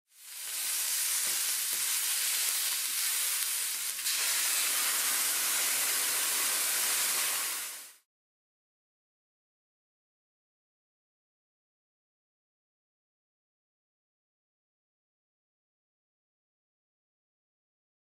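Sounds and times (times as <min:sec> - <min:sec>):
liquid poured into hot pan: 0:00.1 - 0:08.0
peppers sizzling in a frying pan: 0:00.1 - 0:08.0.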